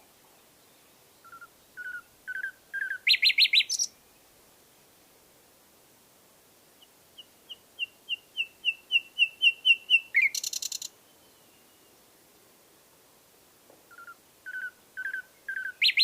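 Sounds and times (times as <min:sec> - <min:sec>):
nightingale singing: 0:00.3 - 0:04.3, 0:06.8 - 0:12.0, 0:13.9 - 0:16.0.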